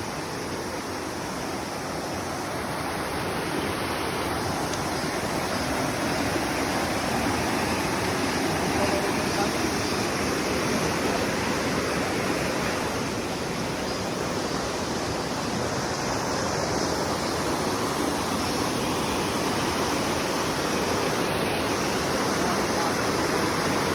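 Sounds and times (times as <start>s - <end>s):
water rushing over boulders: 0.0s - 23.9s.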